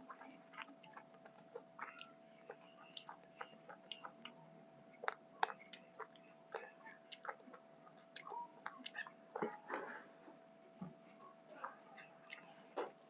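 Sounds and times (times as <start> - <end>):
faint steady hum: 0.0 - 13.0
wet chewing and mouth smacks: 0.5 - 4.4, 5.0 - 9.7.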